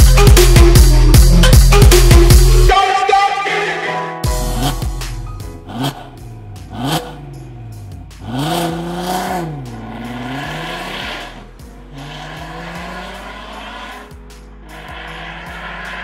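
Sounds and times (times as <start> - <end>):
music with steady beat: 0.0 - 3.4, 4.2 - 16.0
car engine revving: 4.4 - 16.0.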